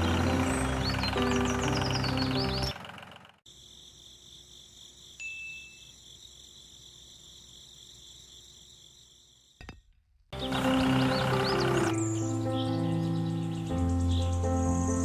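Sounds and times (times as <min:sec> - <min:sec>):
background music: 0:00.0 - 0:02.7, 0:10.4 - 0:15.0.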